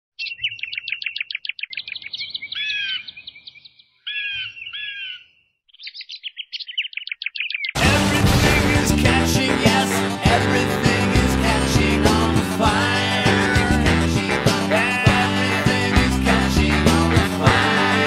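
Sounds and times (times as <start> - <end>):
birds chirping: 0.2 - 10.1
music: 7.8 - 18.0.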